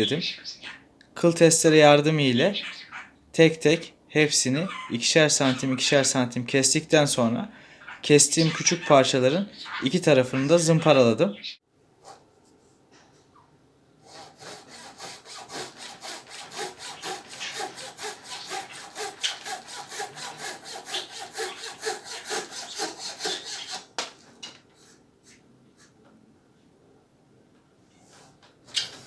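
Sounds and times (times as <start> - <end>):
hand saw cutting wood: 14.0 - 24.1.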